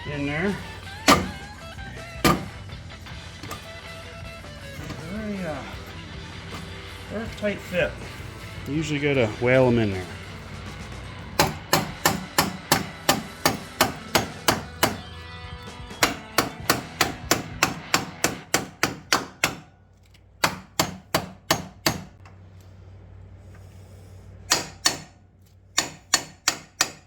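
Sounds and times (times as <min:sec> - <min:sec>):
hammer blows on metal: 0:00.9 - 0:01.5, 0:02.2 - 0:02.7.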